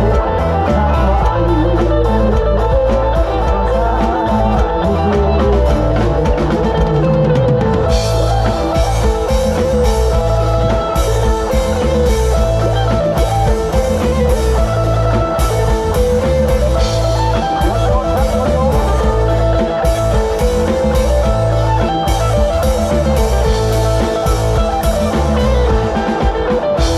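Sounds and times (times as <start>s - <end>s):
drum kit: 0.0s - 26.9s
electric guitar melody: 0.0s - 26.9s
heavy bass: 0.0s - 26.9s.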